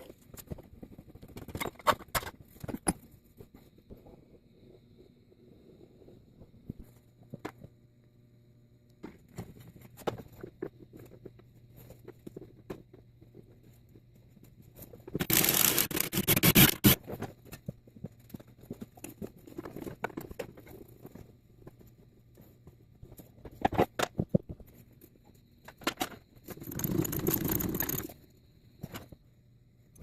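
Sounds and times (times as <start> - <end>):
loud noisy tool burst: 15.2 - 17.0.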